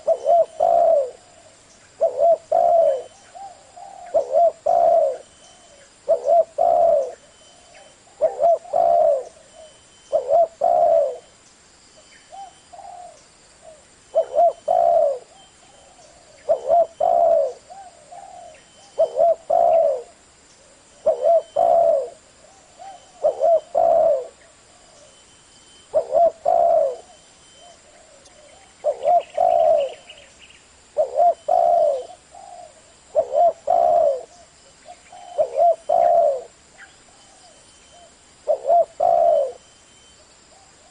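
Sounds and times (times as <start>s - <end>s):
dove cooing: 0.0s - 11.3s, 12.3s - 25.2s, 25.9s - 40.9s.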